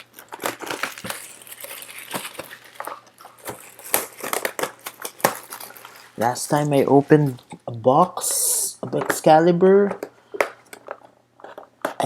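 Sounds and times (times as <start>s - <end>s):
card box wrapper crinkling: 0.0s - 7.5s.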